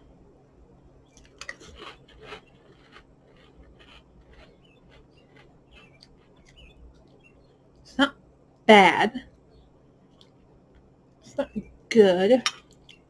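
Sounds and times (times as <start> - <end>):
chewing crunchy cereal: 1.1 - 7.2.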